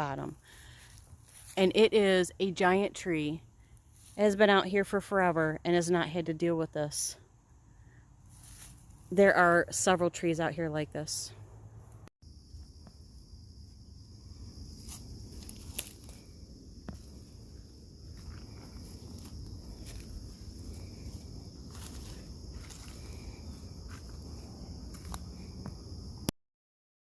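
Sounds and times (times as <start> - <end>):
insects droning: 0.0 - 26.3
footsteps on woodland trail: 0.4 - 1.8, 3.7 - 4.4, 8.2 - 9.1, 12.7 - 26.0
twigs crackling underfoot: 0.7 - 1.6, 3.7 - 4.3, 8.3 - 9.1, 14.6 - 25.6.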